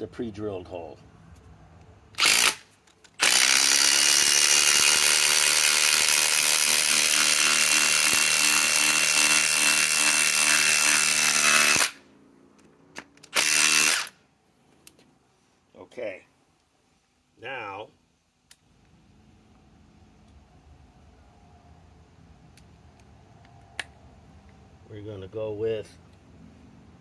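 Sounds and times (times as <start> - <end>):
impact driver hammering screw: 2.2 - 12.0, 13.2 - 14.2.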